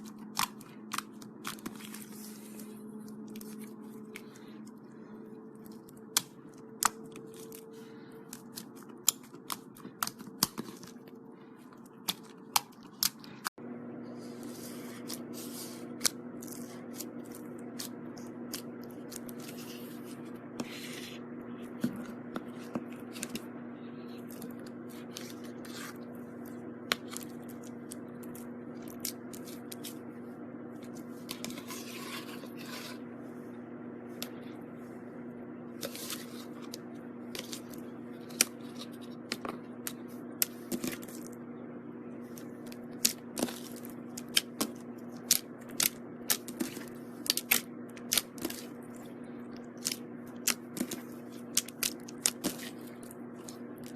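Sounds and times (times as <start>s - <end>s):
background hum: 0.0s - 53.9s.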